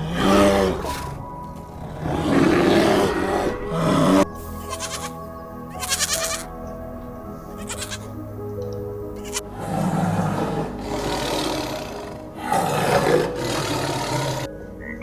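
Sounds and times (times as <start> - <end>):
animal calling: 0.0 - 5.2, 9.2 - 15.0
background music: 0.0 - 15.0.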